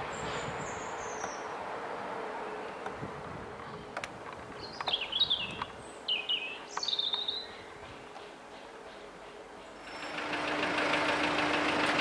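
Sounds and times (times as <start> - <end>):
songbird warbling: 3.6 - 10.2
diesel engine running: 9.8 - 12.0.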